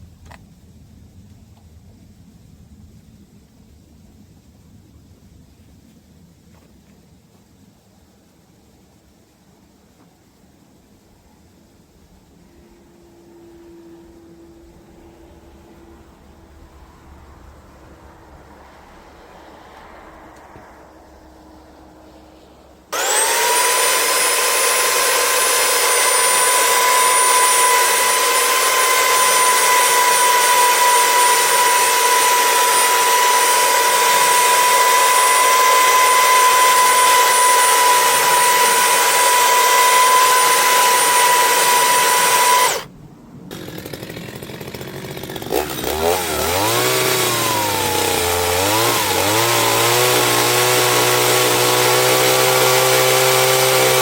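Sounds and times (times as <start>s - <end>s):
motor with wavering pitch: 12.6s - 42.9s
power tool running: 21.6s - 42.9s, 43.5s - 54.0s.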